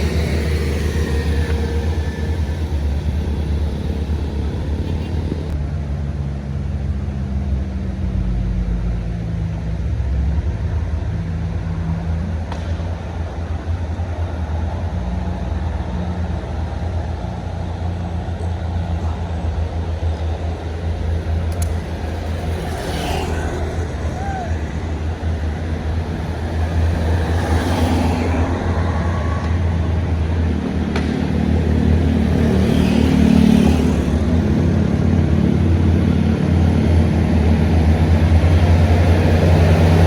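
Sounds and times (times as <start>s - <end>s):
road noise: 0.0s - 40.0s
vehicle engine rumbling: 0.0s - 40.0s.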